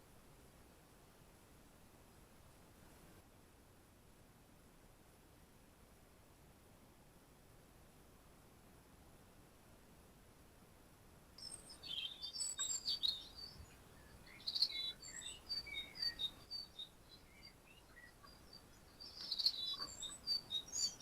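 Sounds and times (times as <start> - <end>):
small birds chirping and singing: 11.4 - 21.0.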